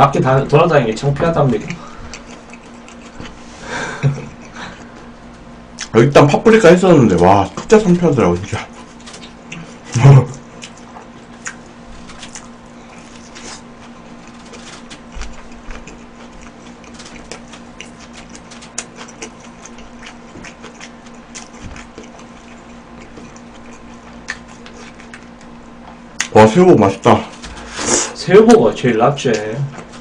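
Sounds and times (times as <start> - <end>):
faint steady hum: 0.0 - 30.0
close-miked chewing: 1.4 - 5.2, 7.1 - 26.5.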